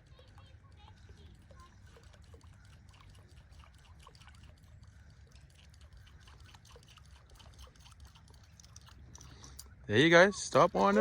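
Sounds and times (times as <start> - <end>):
low steady rumble: 0.0 - 11.0
lure trickling across water: 1.4 - 9.8.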